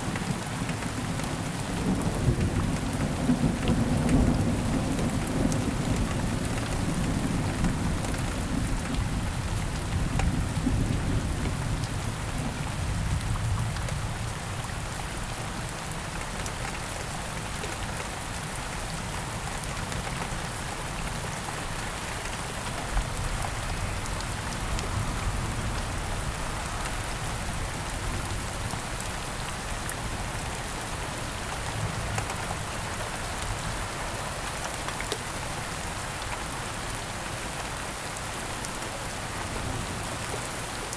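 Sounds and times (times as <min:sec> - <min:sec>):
heavy rain falling: 0:00.0 - 0:40.9
low rumble of thunder: 0:01.7 - 0:15.0.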